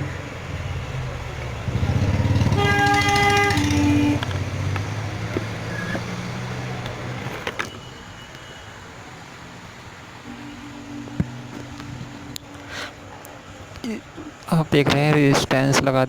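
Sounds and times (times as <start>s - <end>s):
horn sounding: 0.0s - 13.7s
motorcycle engine passing: 0.0s - 13.7s.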